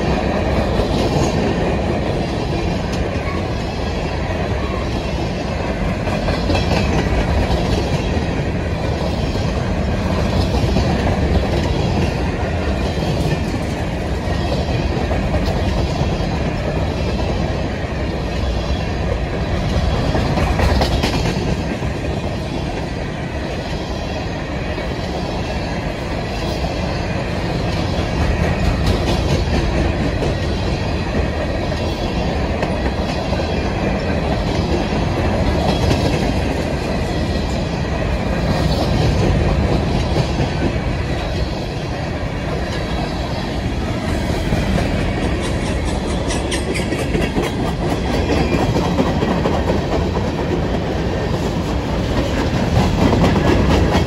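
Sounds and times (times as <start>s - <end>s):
train wheels rumbling on rail: 0.0s - 54.0s
wheels clicking over rail joints: 5.8s - 18.2s, 19.0s - 22.9s, 42.5s - 54.0s.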